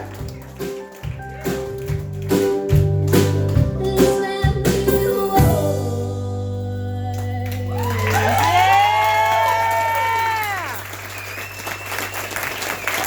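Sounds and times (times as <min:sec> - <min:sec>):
live band playing: 0:00.0 - 0:08.8.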